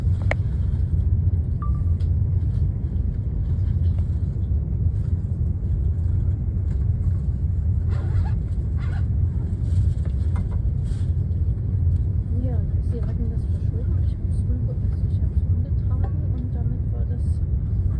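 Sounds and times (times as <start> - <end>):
train rumbling in motion: 0.0 - 17.9.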